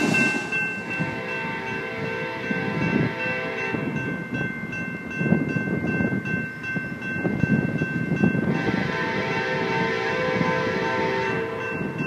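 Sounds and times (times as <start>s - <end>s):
high ringing tones: 0.0s - 8.7s
distant train rumble: 0.0s - 12.0s
horn-like chord: 8.5s - 11.6s.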